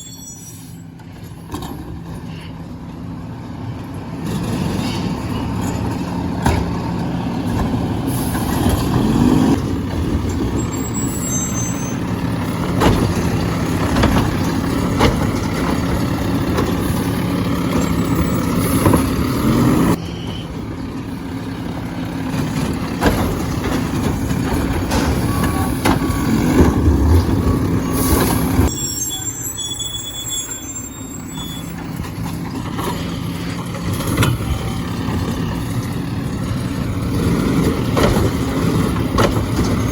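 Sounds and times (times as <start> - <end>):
garbage truck engine running: 0.1 - 39.9
knocks and clanks: 12.4 - 17.1, 22.3 - 28.6, 37.2 - 39.9.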